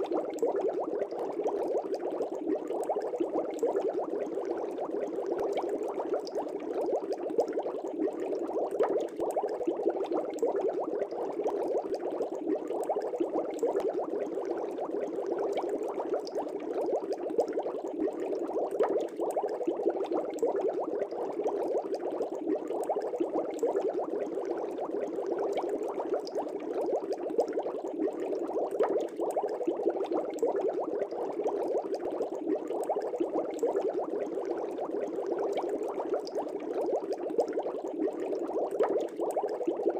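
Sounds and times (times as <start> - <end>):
aquarium air bubbles popping: 0.0 - 39.9.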